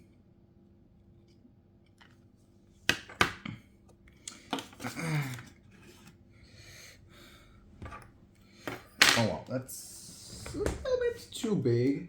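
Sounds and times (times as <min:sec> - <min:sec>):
metal tools clattering: 0:08.7 - 0:09.4.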